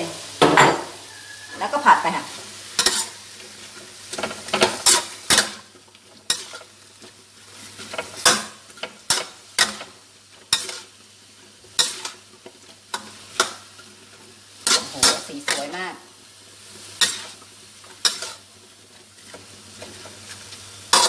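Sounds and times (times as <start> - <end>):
food sizzling: 0.0 - 21.0
spatula scraping a pan: 1.0 - 15.8, 16.7 - 21.0.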